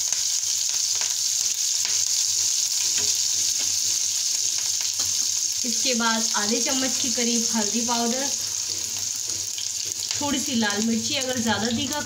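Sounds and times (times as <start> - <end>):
spices sizzling in hot oil: 0.0 - 12.0
spatula stirring: 6.7 - 10.3.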